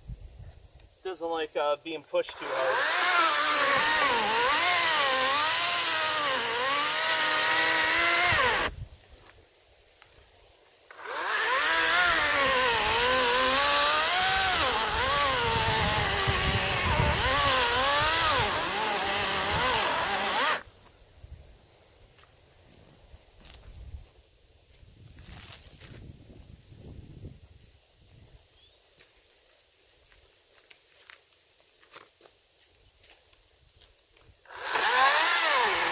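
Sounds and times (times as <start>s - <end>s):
chainsaw cutting logs: 2.2s - 8.8s, 10.9s - 20.7s, 34.4s - 35.9s.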